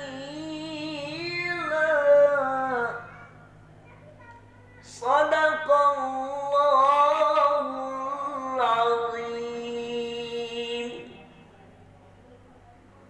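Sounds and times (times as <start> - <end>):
person chanting a recitation: 0.0 - 3.4, 4.8 - 11.6.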